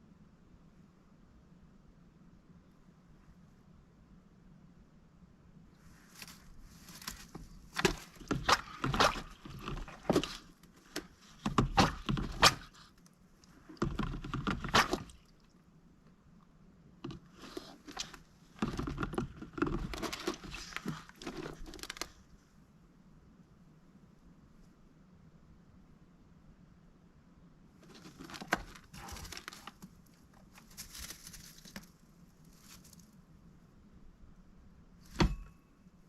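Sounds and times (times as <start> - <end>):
duck knocking and scuffling: 6.0 - 12.9, 13.6 - 15.3, 17.0 - 22.1, 27.8 - 33.0, 35.0 - 35.5.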